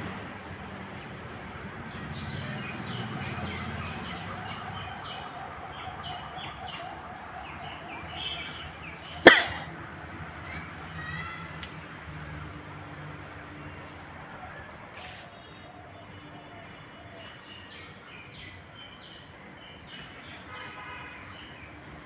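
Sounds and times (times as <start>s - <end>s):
birds chirping: 0.3s - 9.8s.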